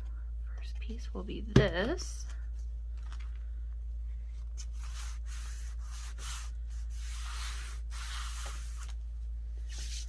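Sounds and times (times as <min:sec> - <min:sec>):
low electrical hum: 0:00.0 - 0:10.0
paper rubbed by hand: 0:04.6 - 0:08.9.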